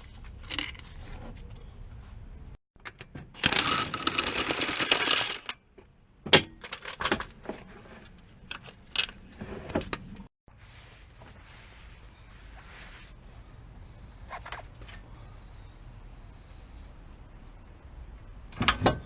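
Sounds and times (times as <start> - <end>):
metallic rattle of tools: 2.8 - 5.6, 6.4 - 7.4.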